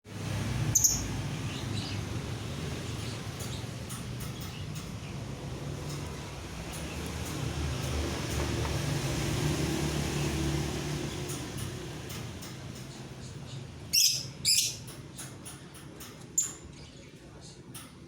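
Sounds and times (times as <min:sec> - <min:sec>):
bird shrill chirps: 0:00.8 - 0:01.1, 0:13.9 - 0:14.8.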